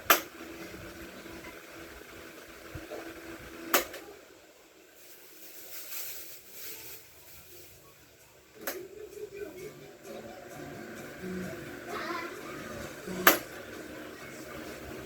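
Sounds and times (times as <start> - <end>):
electric fan motor humming: 0.0 - 5.0, 8.2 - 15.0
soft uneven noise: 0.0 - 15.0.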